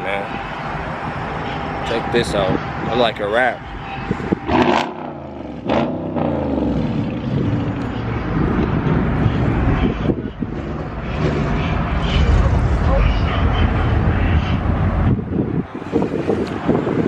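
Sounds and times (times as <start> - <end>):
low engine rumble: 0.0 - 17.0
car engine revving: 3.8 - 16.8.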